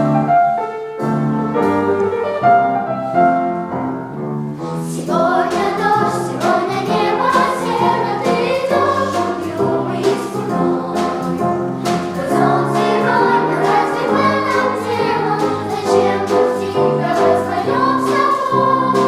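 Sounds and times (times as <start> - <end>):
piano accompaniment: 0.0 - 19.0
vocal ensemble singing: 4.7 - 19.0.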